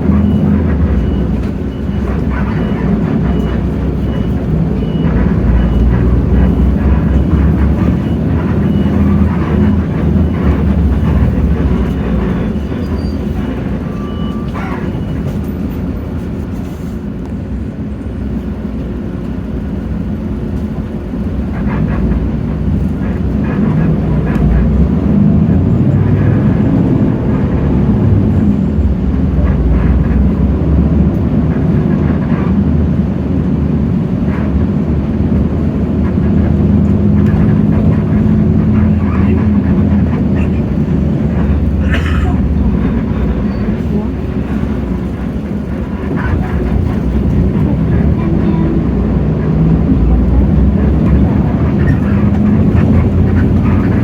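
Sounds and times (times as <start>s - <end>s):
bus diesel engine running: 0.0s - 54.0s
road noise: 0.0s - 54.0s.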